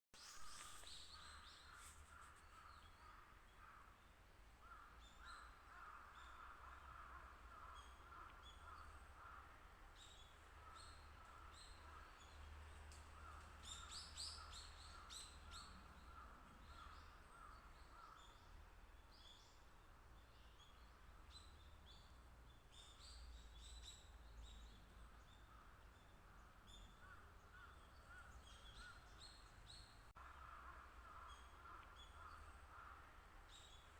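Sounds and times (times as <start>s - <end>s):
wild bird calls: 30.1s - 33.9s.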